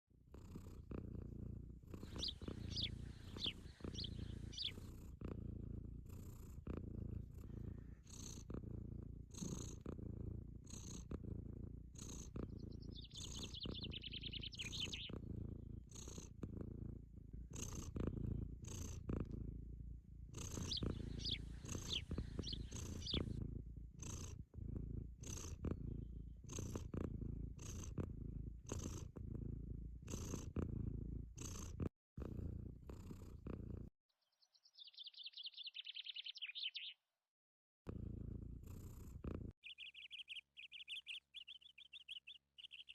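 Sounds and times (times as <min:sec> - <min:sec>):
cat purring: 0:00.1 - 0:33.9, 0:37.9 - 0:42.9
birds chirping: 0:02.0 - 0:04.9, 0:12.3 - 0:15.2, 0:20.5 - 0:23.4, 0:34.2 - 0:37.1, 0:39.6 - 0:42.9.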